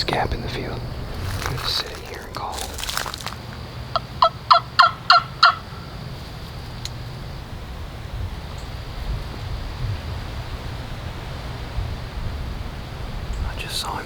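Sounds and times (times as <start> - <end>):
turkey call hen yelps: 4.2 - 5.6.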